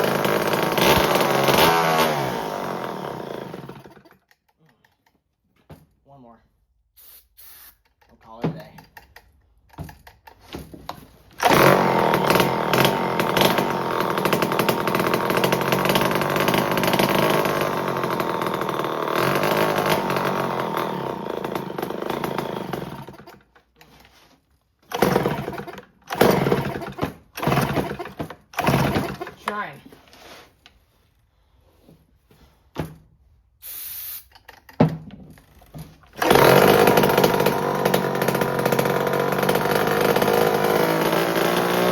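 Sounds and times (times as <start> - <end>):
chainsaw engine running: 0.0 - 4.1, 11.4 - 23.4, 24.9 - 29.6, 36.1 - 41.9.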